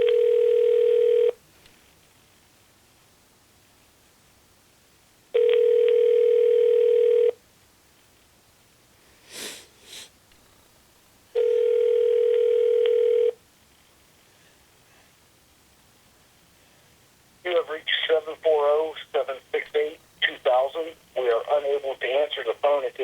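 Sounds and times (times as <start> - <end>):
telephone ringback tone: 0.0 - 1.4, 5.4 - 7.4, 11.4 - 13.4.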